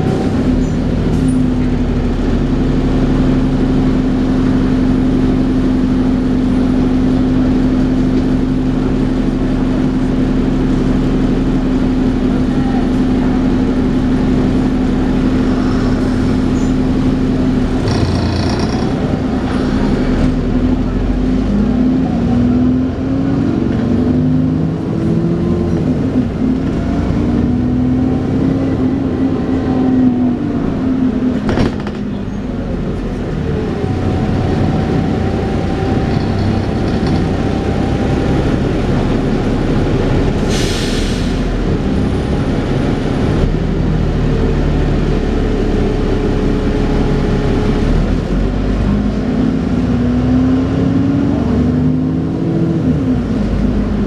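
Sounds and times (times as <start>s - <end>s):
bus drivetrain whine: 0.0s - 54.0s.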